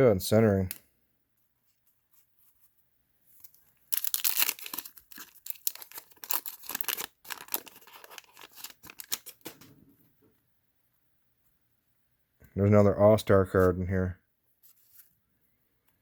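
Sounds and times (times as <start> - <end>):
wax-paper wrapper tearing: 3.4 - 9.5.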